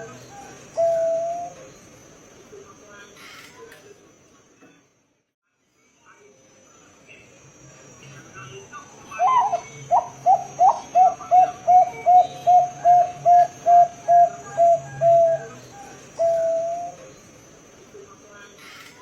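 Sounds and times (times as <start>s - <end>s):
dove cooing: 0.0s - 1.7s, 9.2s - 17.1s.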